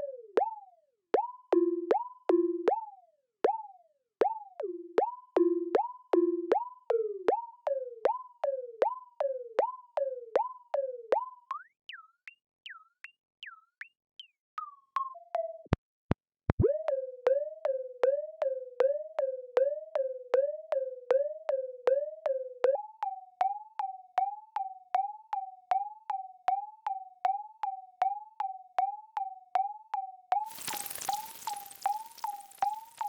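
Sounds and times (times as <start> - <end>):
pulse of clicking blips: 0.0 - 33.0
electronic robot bleeps: 30.4 - 33.0.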